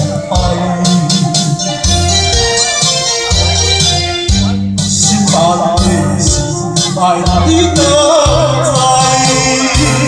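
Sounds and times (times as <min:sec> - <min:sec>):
man singing a slow ballad: 0:00.0 - 0:01.8, 0:04.9 - 0:10.0
backing track with bass and percussion: 0:00.0 - 0:10.0.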